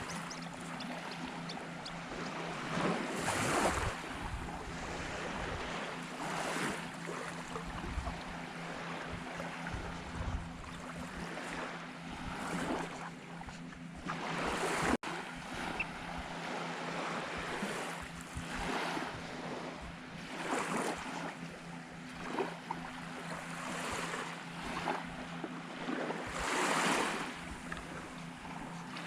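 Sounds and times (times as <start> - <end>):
small waves washing onto sand: 0.0 - 21.4, 22.0 - 29.0
wind on microphone: 2.7 - 14.1.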